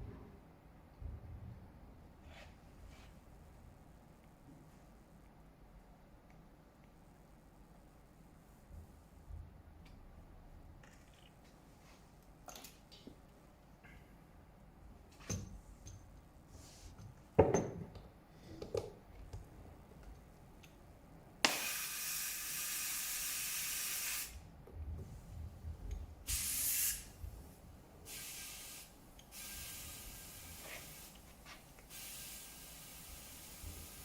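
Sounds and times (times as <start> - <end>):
compressed air hissing into tyre: 21.5 - 24.4, 26.3 - 27.2, 28.1 - 31.2, 31.9 - 34.0.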